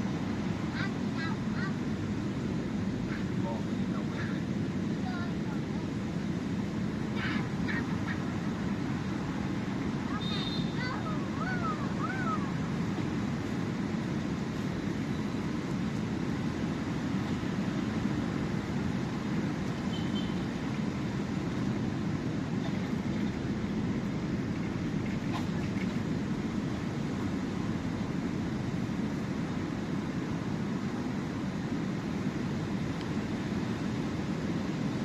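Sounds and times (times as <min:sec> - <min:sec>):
sea surf: 0:00.0 - 0:35.0
short wavering call: 0:10.1 - 0:12.6.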